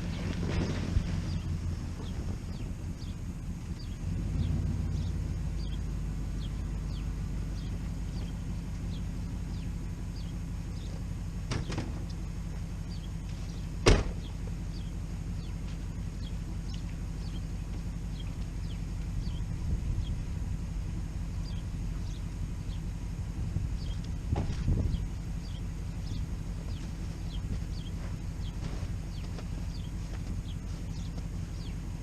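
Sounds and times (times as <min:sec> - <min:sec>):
car engine idling: 0:00.0 - 0:32.0
car door shutting: 0:13.8 - 0:14.3.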